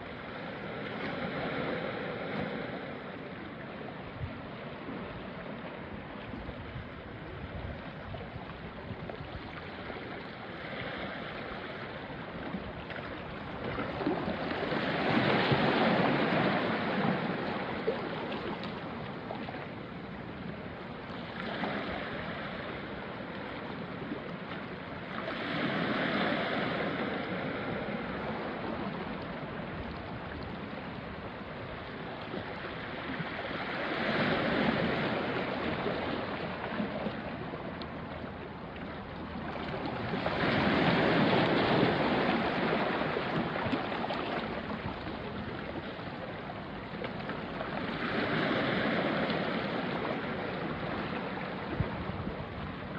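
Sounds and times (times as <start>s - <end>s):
sea waves washing onto rocks: 9.7s - 38.0s, 39.3s - 52.9s.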